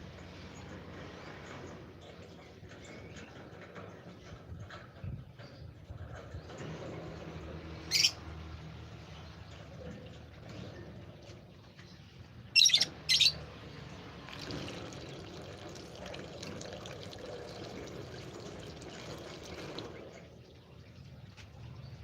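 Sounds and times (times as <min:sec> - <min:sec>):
high-pitched bird calls: 0:07.8 - 0:08.2, 0:12.5 - 0:13.5.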